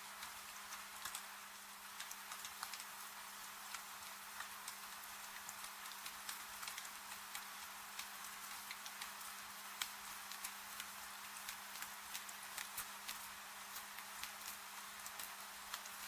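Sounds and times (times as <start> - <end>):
rain hiss: 0.0 - 16.0
wood fire crackling: 3.7 - 16.0.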